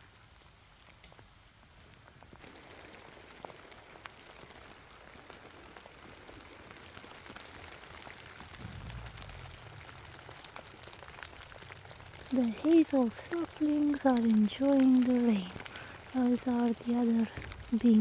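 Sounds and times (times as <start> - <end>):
rain falling: 0.0 - 18.0
low rumble: 8.4 - 12.3.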